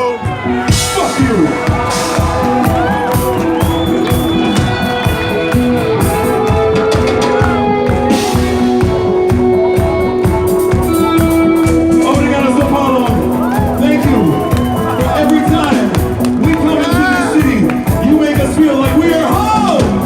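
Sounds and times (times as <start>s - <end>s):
faint crowd: 0.0s - 20.0s
metal band playing live: 0.0s - 20.0s
drum beat: 0.3s - 20.0s.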